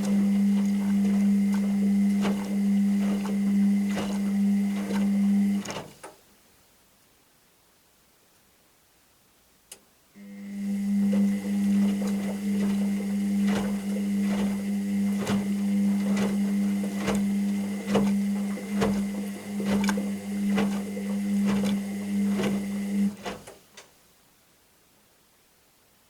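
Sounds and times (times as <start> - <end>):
washing machine drum knocking: 0.0 - 5.6, 11.0 - 23.1
washing machine motor hum: 0.0 - 5.8, 10.2 - 23.6.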